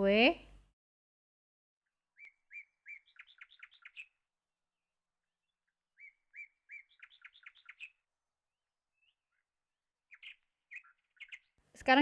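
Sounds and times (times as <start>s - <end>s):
faint bird song: 1.8s - 4.4s, 5.2s - 12.0s.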